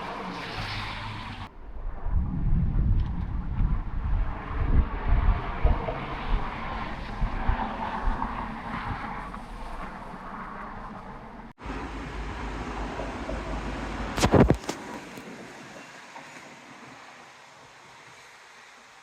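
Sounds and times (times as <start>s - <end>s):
gusty thunder rumble: 0.2s - 11.5s.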